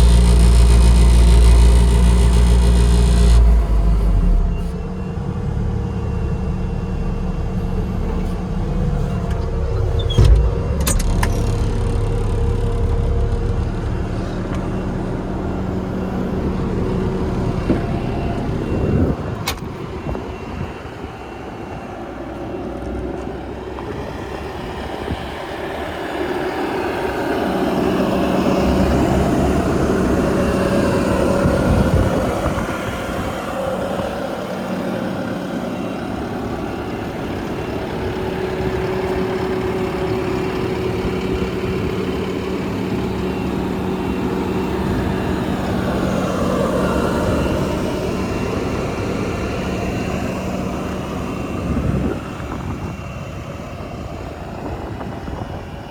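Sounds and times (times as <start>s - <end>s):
diesel loader engine running: 0.0s - 55.9s.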